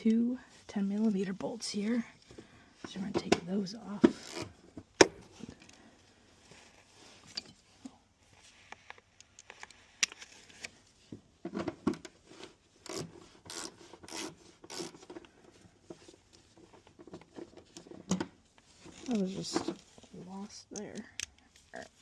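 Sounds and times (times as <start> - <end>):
hand ratchet strokes: 12.8 - 15.2.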